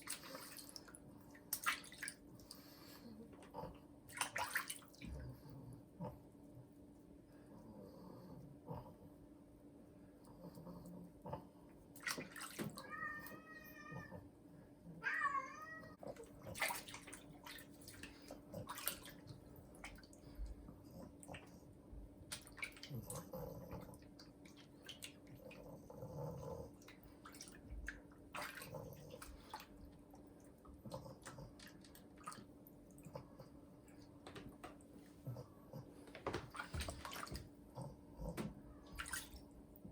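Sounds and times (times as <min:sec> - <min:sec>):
water splashing and dripping: 0:00.0 - 0:02.5, 0:12.0 - 0:12.9, 0:16.4 - 0:20.2.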